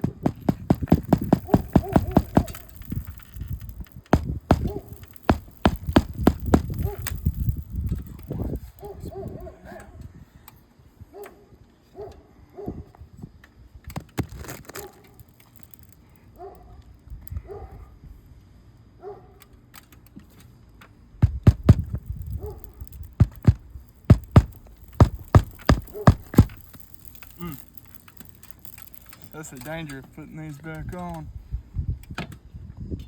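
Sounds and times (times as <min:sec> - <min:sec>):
hammer striking nails: 0:00.0 - 0:07.6, 0:21.2 - 0:29.4.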